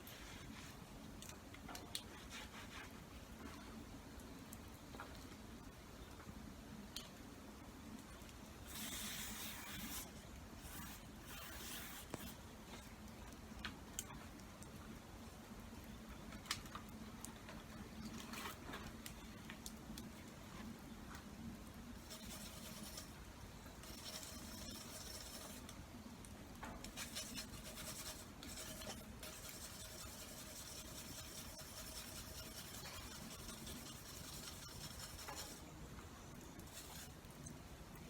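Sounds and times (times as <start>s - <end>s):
faint rubbing and scraping: 2.1s - 3.8s, 8.6s - 12.4s, 22.0s - 25.7s, 26.8s - 35.7s, 36.6s - 37.2s.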